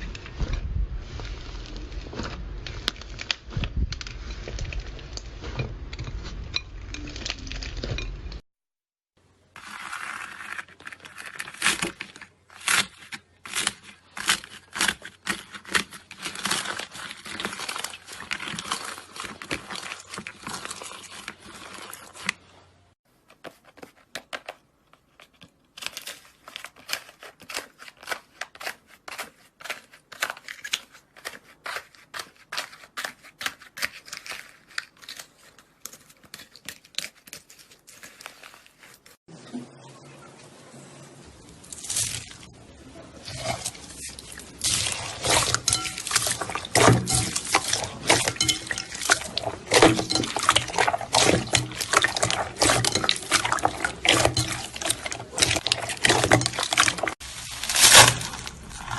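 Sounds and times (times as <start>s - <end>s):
slime crackling and popping: 1.1s - 6.3s, 43.9s - 58.9s.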